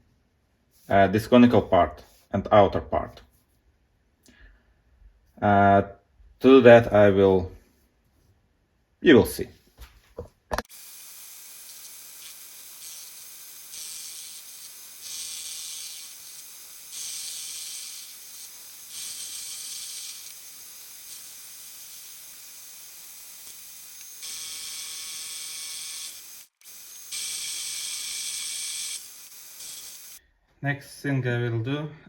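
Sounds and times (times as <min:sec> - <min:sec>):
lathe tool hissing through metal: 0:10.7 - 0:30.2.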